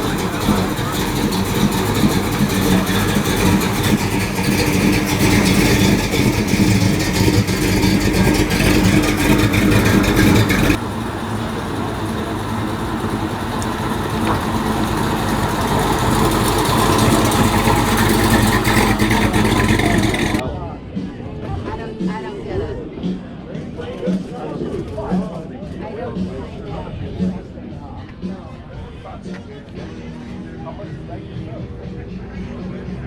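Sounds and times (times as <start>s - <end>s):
car engine running: 0.0s - 20.4s.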